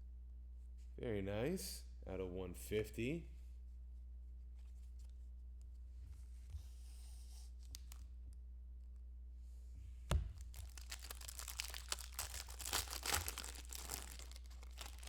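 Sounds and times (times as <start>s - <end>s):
foil pack tearing open: 10.4s - 15.0s
wrapper crinkling: 10.4s - 15.0s.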